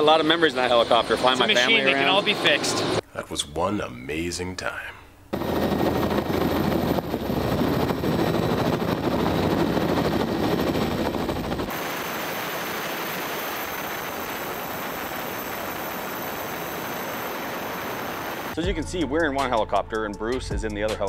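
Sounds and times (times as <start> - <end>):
helicopter rotor chopping: 0.0 - 3.0, 5.3 - 18.6.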